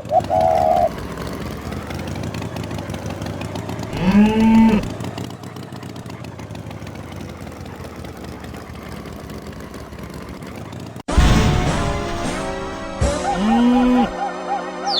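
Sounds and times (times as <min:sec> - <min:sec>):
engine idling: 0:00.0 - 0:11.1.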